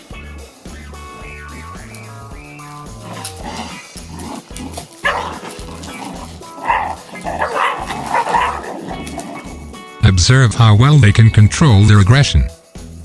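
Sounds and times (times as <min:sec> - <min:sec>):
puppies barking and yipping: 0:01.5 - 0:10.0
background music with beat: 0:09.1 - 0:13.0.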